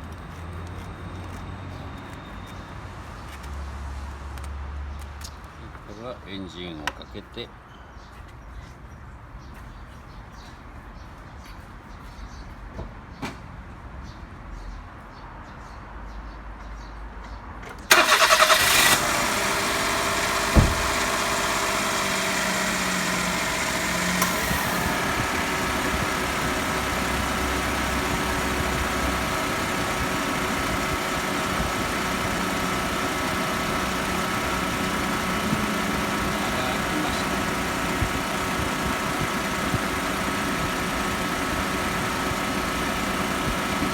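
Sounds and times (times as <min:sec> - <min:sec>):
car engine idling: 0:17.9 - 0:43.9
car starter cranking: 0:17.9 - 0:43.9.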